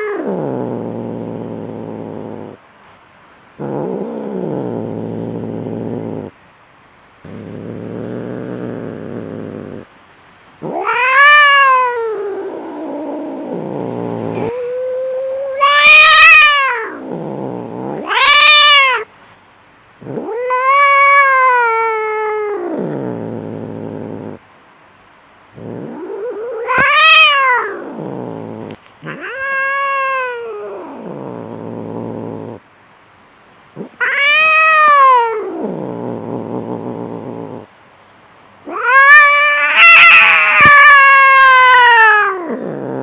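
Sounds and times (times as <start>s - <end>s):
cats growling: 0.0s - 2.6s, 3.5s - 6.4s, 7.2s - 9.9s, 10.6s - 19.1s, 20.0s - 24.4s, 25.5s - 32.6s, 33.7s - 37.7s, 38.6s - 43.0s
cats yowling: 10.6s - 19.1s, 20.0s - 23.0s, 25.6s - 32.6s, 33.8s - 36.2s, 38.6s - 43.0s.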